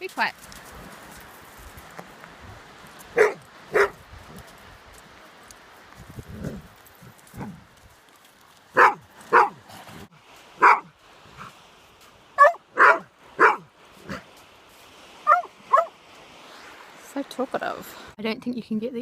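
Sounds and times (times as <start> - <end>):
dog barking: 3.2 - 4.0, 8.8 - 9.6, 10.6 - 10.9, 12.4 - 14.2, 15.3 - 15.9.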